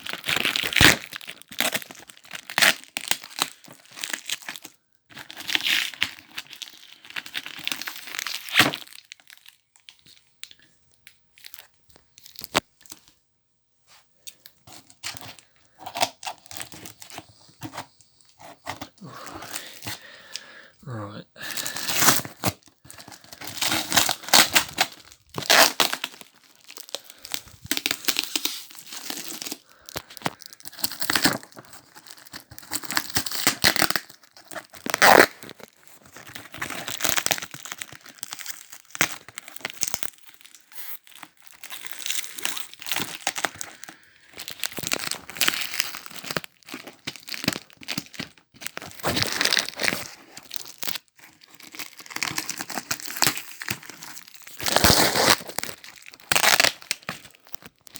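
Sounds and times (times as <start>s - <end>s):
packaging being torn and crumpled: 0.0s - 10.6s, 11.4s - 13.0s, 14.2s - 57.9s
sharp loud paper rip: 54.7s - 55.6s.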